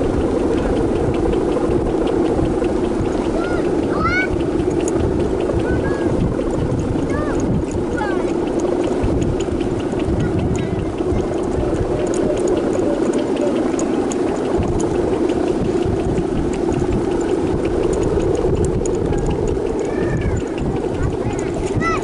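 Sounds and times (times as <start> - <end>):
boat engine running: 0.0 - 22.0
wind buffeting microphone: 0.0 - 22.0.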